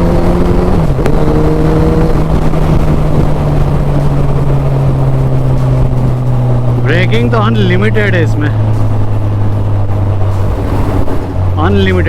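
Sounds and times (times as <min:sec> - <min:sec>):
heavy wind noise: 0:00.0 - 0:12.0
motorcycle engine running: 0:00.0 - 0:12.0.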